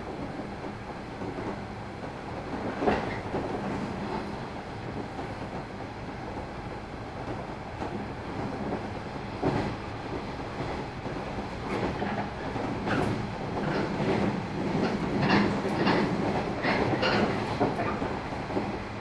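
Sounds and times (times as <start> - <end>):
train interior low hum: 0.0 - 19.0
wheels clacking over rail joints: 7.2 - 18.8.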